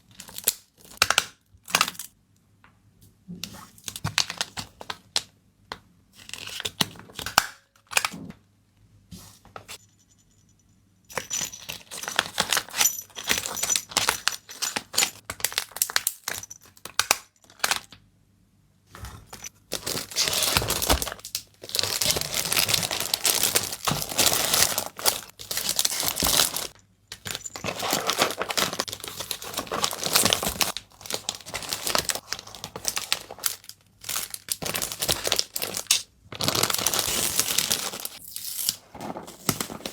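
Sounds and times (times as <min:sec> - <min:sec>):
plastic wrapping crinkling: 0:19.4 - 0:38.2.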